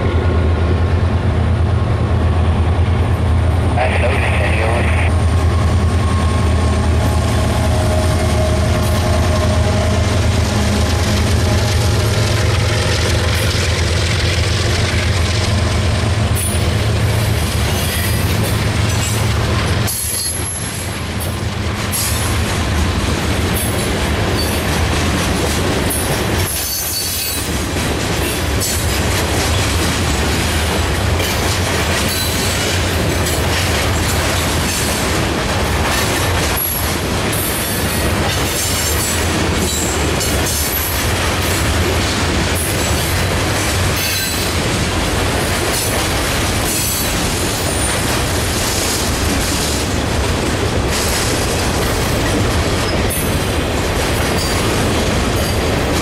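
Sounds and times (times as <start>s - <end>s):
locomotive engine droning: 0.0s - 21.4s
train wheels rumbling on rail: 0.0s - 56.0s.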